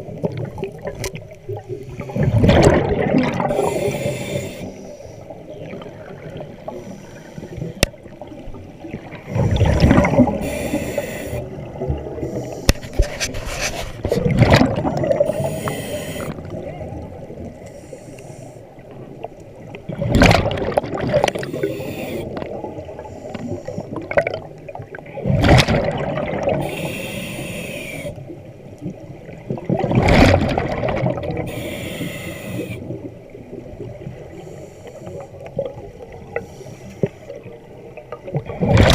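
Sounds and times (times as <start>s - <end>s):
exhaled bubbles underwater: 0.0s - 12.7s, 14.0s - 17.8s, 18.7s - 38.9s
diver inhaling through regulator: 3.4s - 5.4s, 9.4s - 11.6s, 12.2s - 13.0s, 15.2s - 16.5s, 17.6s - 18.7s, 21.2s - 22.4s, 26.6s - 28.2s, 31.4s - 33.0s, 36.4s - 37.3s.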